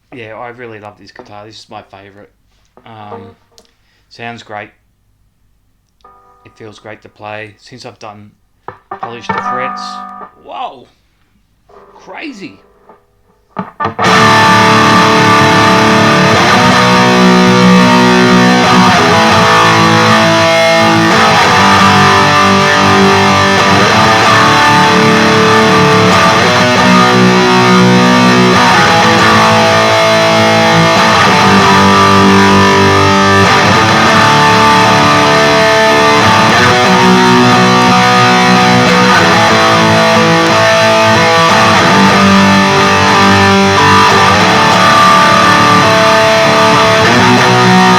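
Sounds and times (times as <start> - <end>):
distorted electric guitar riff: 6.0 - 7.0, 8.7 - 10.6, 11.7 - 47.9.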